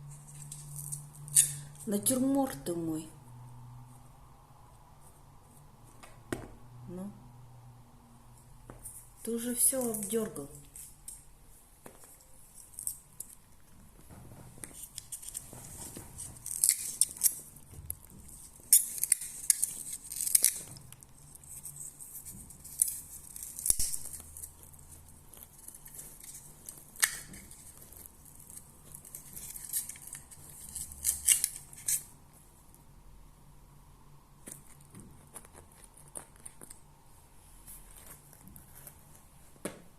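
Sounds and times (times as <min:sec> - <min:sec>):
plant material rustling and tearing: 0:14.6 - 0:32.1.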